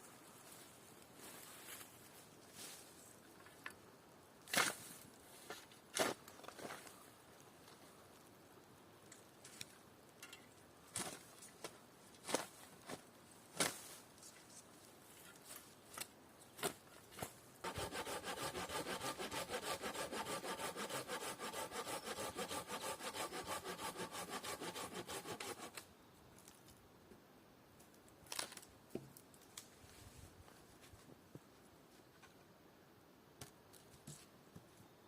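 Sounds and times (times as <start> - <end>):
hand saw cutting wood: 17.6 - 25.8.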